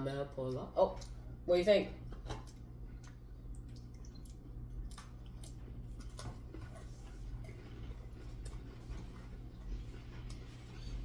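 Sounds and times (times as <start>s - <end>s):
steady low hum: 0.0s - 11.0s
biscuits crunching while chewed: 2.4s - 11.0s.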